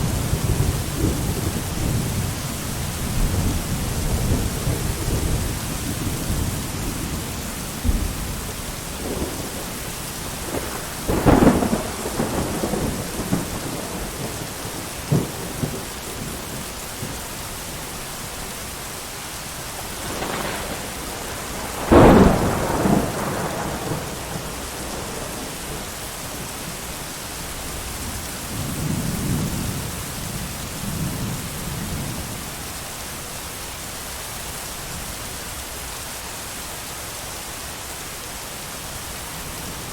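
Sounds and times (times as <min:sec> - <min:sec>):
thunder rumbling: 0:00.0 - 0:18.5, 0:19.7 - 0:27.1
heavy rain: 0:00.0 - 0:39.9.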